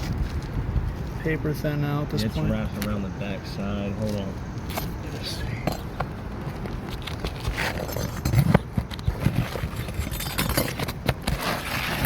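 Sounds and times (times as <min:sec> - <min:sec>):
steady low rumble: 0:00.0 - 0:08.7
scratchy shingle scrape: 0:04.0 - 0:12.0.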